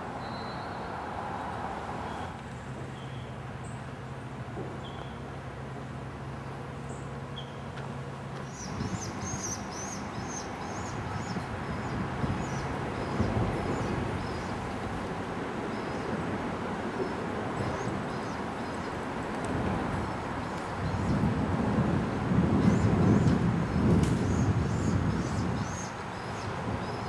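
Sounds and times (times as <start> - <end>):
birds chirping: 6.4 - 7.8, 8.4 - 14.7, 17.0 - 19.1
steady rushing noise: 7.9 - 27.0.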